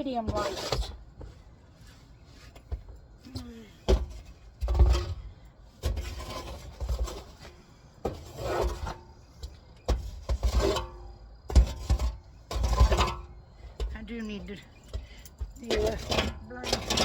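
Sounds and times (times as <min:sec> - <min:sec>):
scraping in sawdust: 0:05.8 - 0:13.3.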